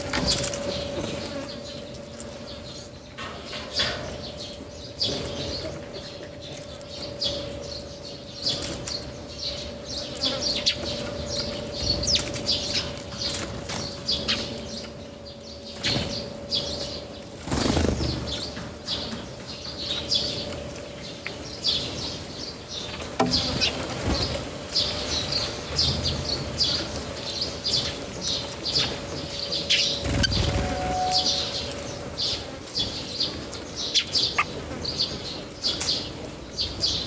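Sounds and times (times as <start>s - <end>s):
small birds chirping: 0.0s - 37.0s
bird wingbeats: 30.0s - 31.4s.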